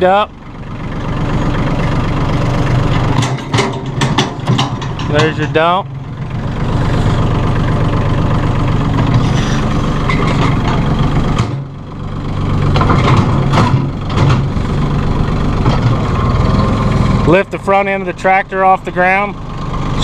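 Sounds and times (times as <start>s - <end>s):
tractor diesel engine idling: 0.0s - 20.0s
loader hydraulics working: 0.9s - 11.7s
sharp knocks: 3.0s - 5.6s.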